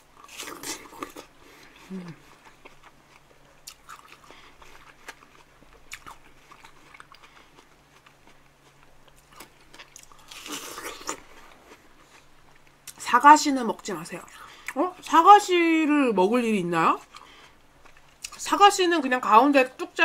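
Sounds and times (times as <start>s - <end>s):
crunching bite into watermelon: 0.2s - 1.3s, 8.0s - 11.8s
chewing and wet mouth sounds: 0.2s - 13.1s, 17.0s - 18.6s.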